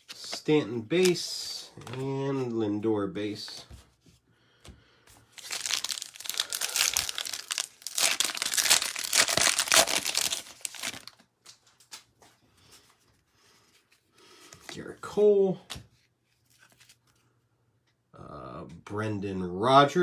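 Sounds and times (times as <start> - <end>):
foil wrapper crinkling and tearing: 5.3 - 12.1.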